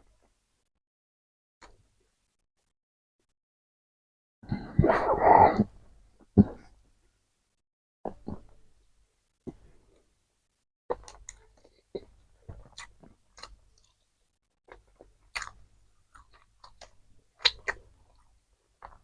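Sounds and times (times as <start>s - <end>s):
close chewing mouth sounds: 10.9s - 14.0s, 14.7s - 19.0s.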